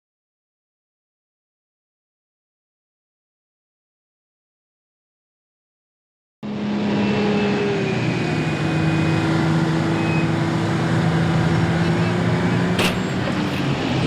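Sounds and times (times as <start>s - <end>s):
low engine hum: 6.4s - 14.0s
road noise: 6.4s - 14.0s.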